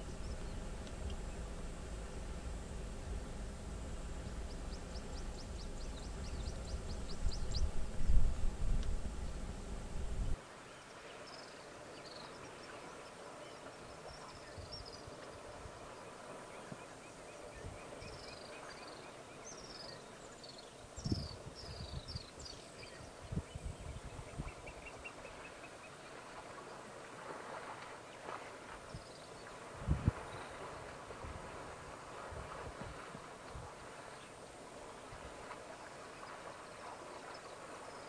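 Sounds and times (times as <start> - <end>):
bird ticking notes: 0.0 - 10.4
low rumble: 0.0 - 10.4
low thumps: 0.0 - 10.4
birds chirping: 0.0 - 25.9.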